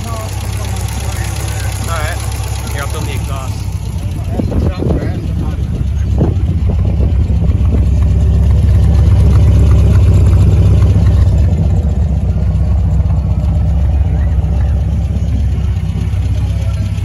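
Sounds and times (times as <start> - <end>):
car engine idling exhaust note: 0.0 - 17.0.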